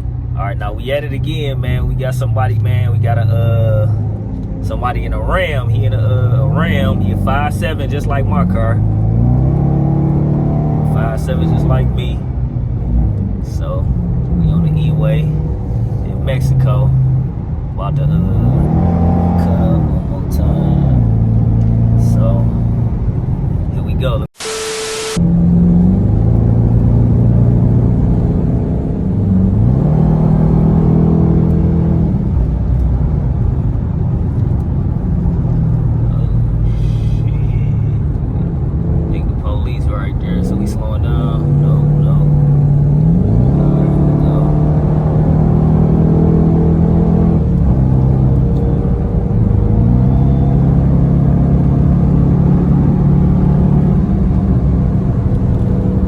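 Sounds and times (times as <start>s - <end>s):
car engine accelerating hard: 0.0s - 56.0s
road rumble: 0.0s - 56.0s.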